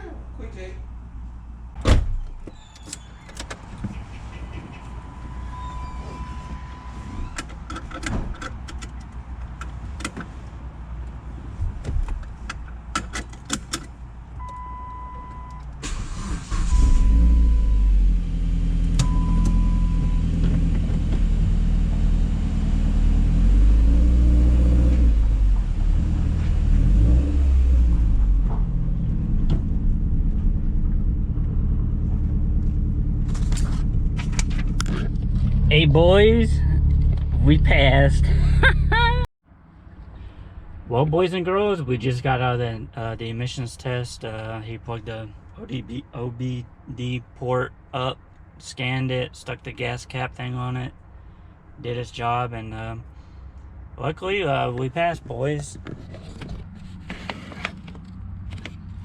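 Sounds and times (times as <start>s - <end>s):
car engine starting and running: 12.0s - 39.3s, 53.3s - 59.0s
car warning chime beeping: 14.4s - 15.7s, 16.6s - 18.0s, 19.0s - 20.3s.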